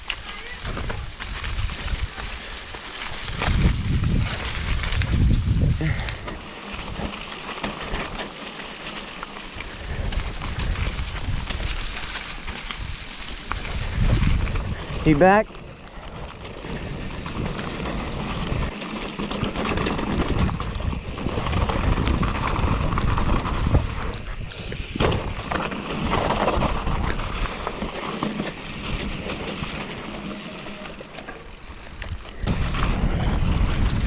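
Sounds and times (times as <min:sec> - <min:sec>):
wind on microphone: 0:00.0 - 0:07.2, 0:09.6 - 0:15.2, 0:19.6 - 0:27.6, 0:31.6 - 0:34.0
bike clattering over bumps: 0:00.0 - 0:34.0
bike tyre noise: 0:00.0 - 0:34.0.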